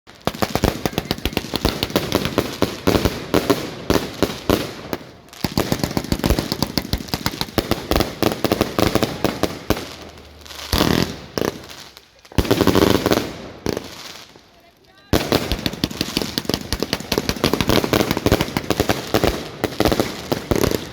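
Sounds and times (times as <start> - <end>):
fireworks cracks and bangs: 0.1 - 20.9.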